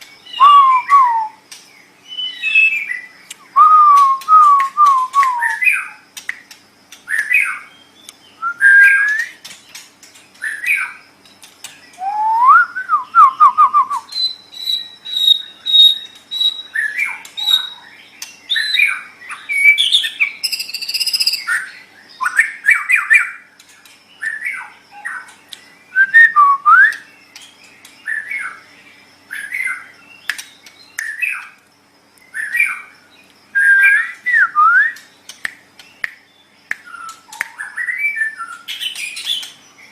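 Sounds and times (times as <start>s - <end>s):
bird singing whistled phrases: 0.2s - 1.4s, 2.0s - 6.0s, 7.1s - 9.4s, 11.9s - 17.8s, 18.5s - 23.4s, 25.9s - 27.2s, 33.5s - 35.2s, 35.9s - 39.5s.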